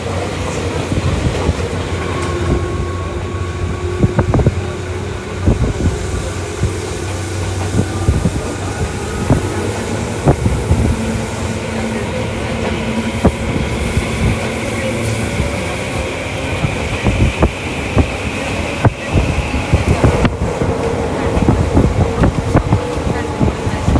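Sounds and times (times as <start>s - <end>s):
train wheels rumbling on rail: 0.0s - 23.9s.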